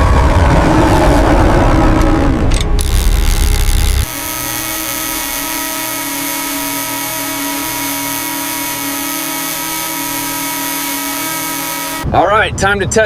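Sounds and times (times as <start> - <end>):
loud low rumble: 0.0 - 6.2
machine high whine: 0.0 - 12.1
low hum: 0.0 - 12.2.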